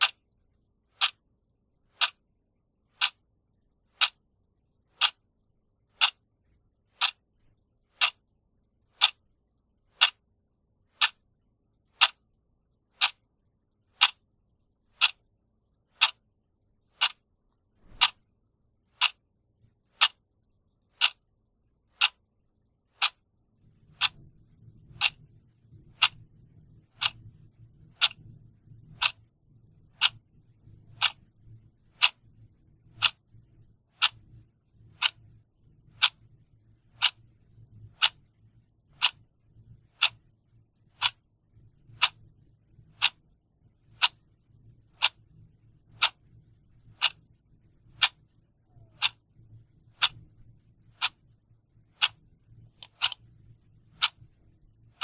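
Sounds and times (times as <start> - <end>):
clock ticking: 0.0 - 0.2, 0.9 - 2.3, 2.9 - 4.2, 4.9 - 5.2, 5.8 - 6.3, 6.9 - 7.3, 7.9 - 8.2, 8.9 - 9.2, 9.9 - 10.3, 10.9 - 11.2, 11.9 - 12.3, 12.9 - 13.2, 13.9 - 14.2, 14.9 - 15.3, 15.9 - 16.3, 16.9 - 18.2, 18.9 - 19.2, 19.9 - 20.2, 20.9 - 21.3, 21.9 - 22.2, 22.9 - 23.2, 23.8 - 29.3, 29.9 - 30.3, 30.9 - 31.2, 31.9 - 32.3, 32.9 - 33.3, 33.9 - 35.3, 35.9 - 36.3, 36.9 - 39.3, 39.9 - 40.3, 41.0 - 41.3, 41.9 - 54.3
faint low hum: 0.0 - 55.0.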